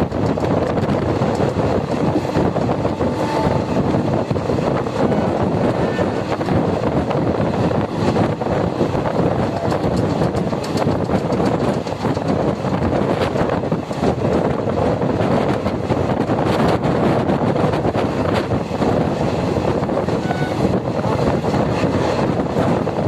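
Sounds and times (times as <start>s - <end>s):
train wheels rumbling on rails: 0.0s - 23.0s
wind on microphone: 0.0s - 23.0s
clicks and rattles: 9.5s - 14.5s.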